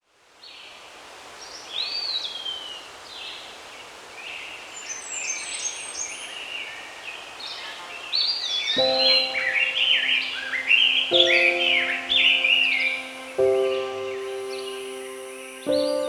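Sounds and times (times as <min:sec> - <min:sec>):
forest background hiss: 0:00.0 - 0:16.0
wild birds calling: 0:04.3 - 0:16.0
music with sustained low notes: 0:08.8 - 0:16.0.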